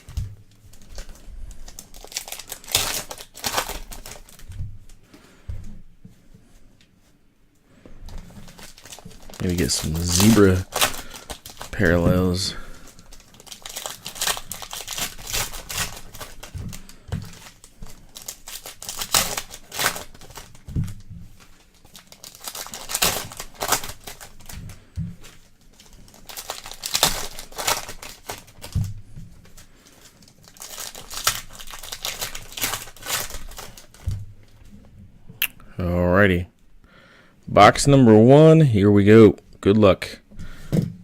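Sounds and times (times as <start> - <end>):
plastic wrapping crinkling and tearing: 0.0 - 5.1, 8.0 - 34.8.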